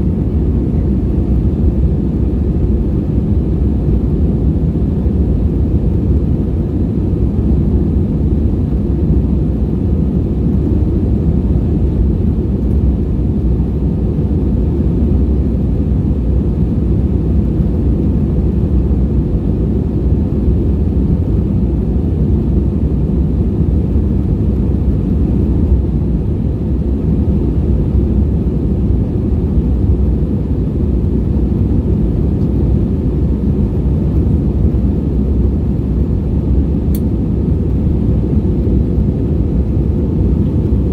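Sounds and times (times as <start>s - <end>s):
jet engine cabin rumble: 0.0s - 40.9s.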